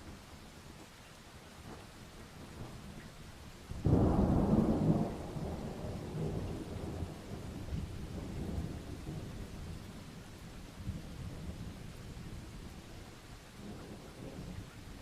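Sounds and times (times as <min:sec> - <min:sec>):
steady rain: 0:00.0 - 0:15.0
thunder clap rumbling: 0:03.8 - 0:09.5.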